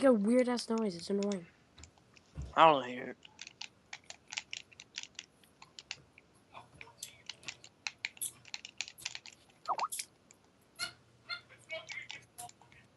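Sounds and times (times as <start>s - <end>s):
keyboard typing: 3.2s - 6.0s, 6.8s - 10.0s
gliding pitched chirp: 9.7s - 10.0s.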